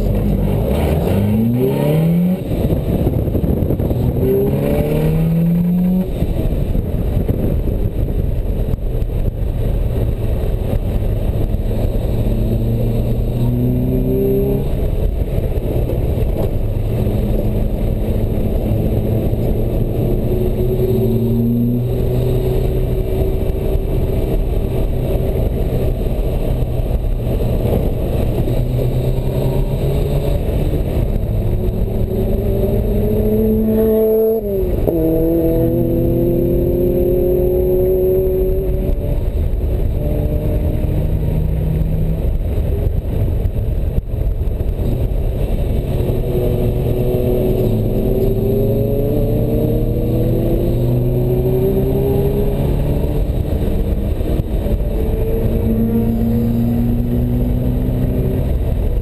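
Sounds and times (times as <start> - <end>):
sports car engine accelerating: 0.0 - 59.0.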